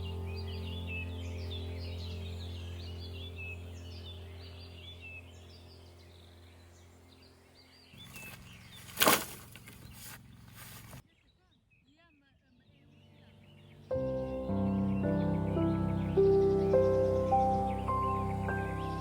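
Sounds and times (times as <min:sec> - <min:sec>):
steady low hum: 0:00.0 - 0:11.0
small birds chirping: 0:00.0 - 0:19.0.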